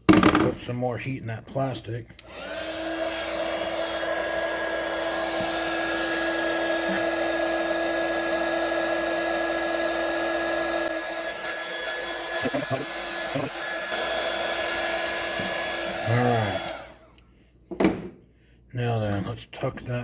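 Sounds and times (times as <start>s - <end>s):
knocks from handling parts: 0.0s - 0.6s, 17.7s - 18.2s
heat gun blowing with whine: 2.2s - 17.0s.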